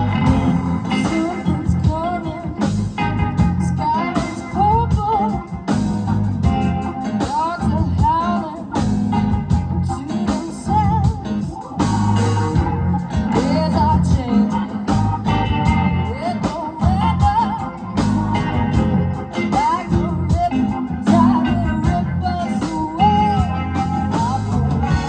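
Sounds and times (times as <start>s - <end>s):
live rock band playing: 0.0s - 25.0s
sliding lead melody: 0.0s - 25.0s.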